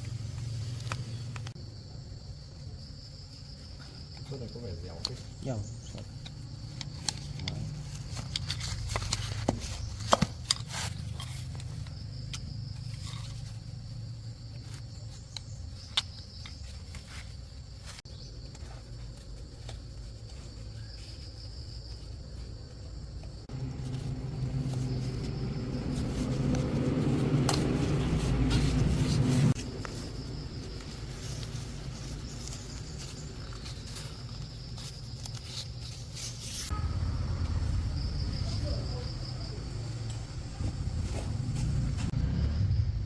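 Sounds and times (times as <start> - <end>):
insects chirping: 0.0 - 43.0
steady low hum: 23.0 - 43.0.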